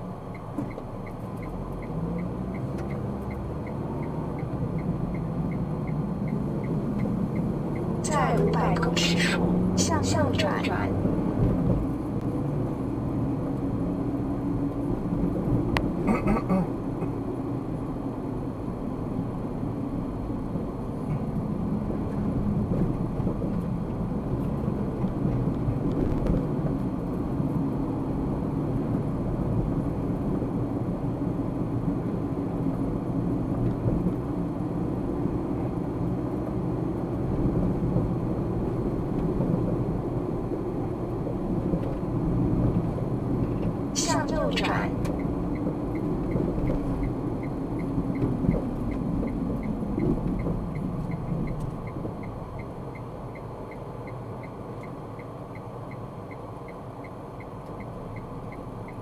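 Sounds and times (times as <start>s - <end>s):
car engine hum: 0.0s - 59.0s.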